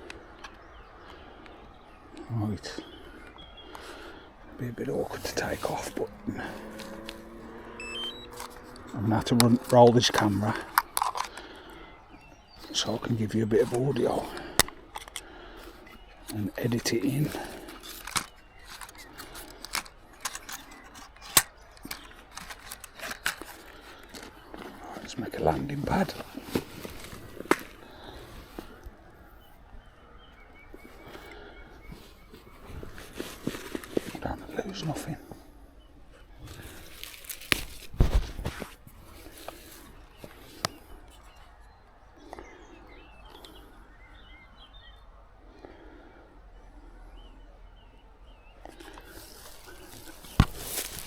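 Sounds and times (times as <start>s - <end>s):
small birds chirping: 0.0s - 51.0s
light rattling of gear: 4.7s - 28.8s
sharp clicks from gear handling: 5.2s - 11.8s, 12.6s - 28.8s.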